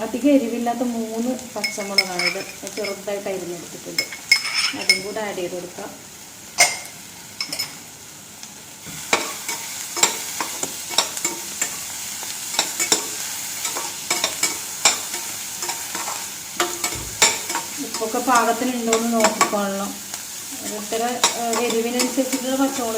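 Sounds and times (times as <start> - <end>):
onions sizzling in oil: 0.0 - 22.9
spoon clicking against pan: 9.1 - 11.8, 12.5 - 19.6, 21.2 - 22.9.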